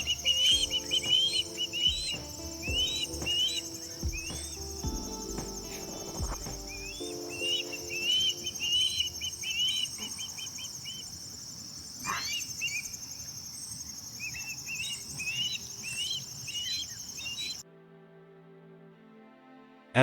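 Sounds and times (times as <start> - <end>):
whistled bird chirps: 0.0 - 11.2, 12.0 - 17.6
high-pitched insect drone: 0.0 - 11.4.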